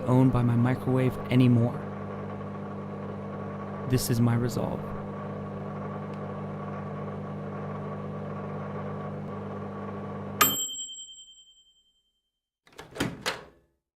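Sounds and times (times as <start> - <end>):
microwave oven humming: 0.0 - 10.8
microwave timer bell ding: 10.4 - 12.1.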